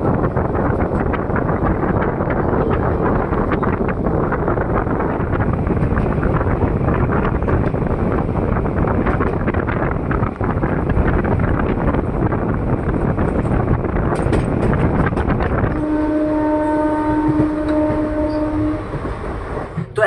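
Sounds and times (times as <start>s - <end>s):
train wheels rumbling on track: 0.0s - 20.0s
train horn: 15.7s - 19.2s.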